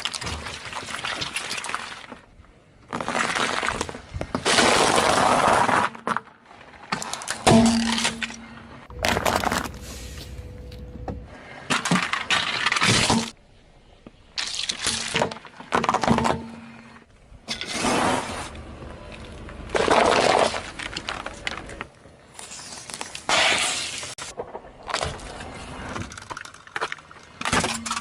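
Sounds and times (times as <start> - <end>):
objects crunching under car tyres: 0.0 - 28.0.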